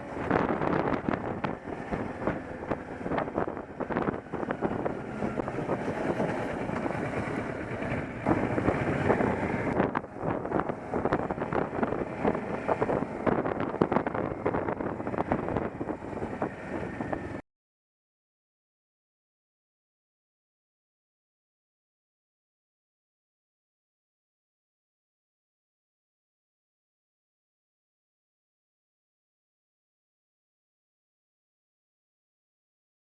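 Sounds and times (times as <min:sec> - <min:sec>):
motorcycle engine running: 0:00.0 - 0:17.4
wind buffeting microphone: 0:00.0 - 0:17.4
wind rush: 0:00.0 - 0:17.4.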